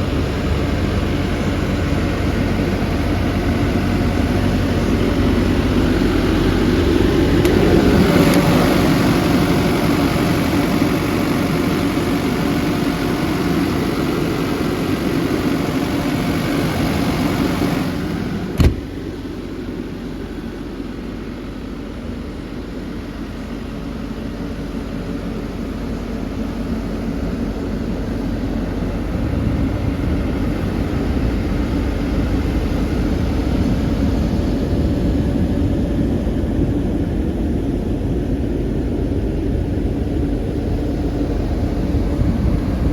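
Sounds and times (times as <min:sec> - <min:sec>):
excavator diesel engine running: 0:00.0 - 0:42.9
sharp knock: 0:18.6 - 0:18.8.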